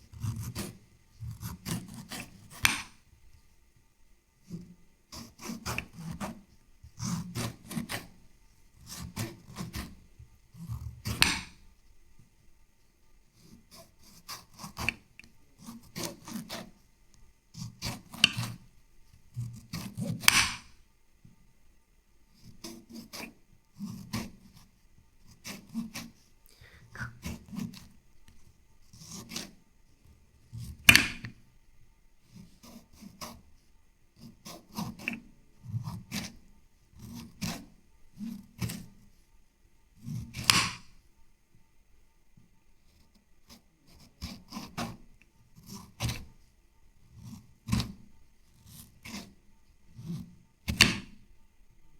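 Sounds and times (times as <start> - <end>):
scraping strokes on wood: 0.1 - 3.0, 4.4 - 8.2, 13.4 - 16.8, 17.6 - 18.6.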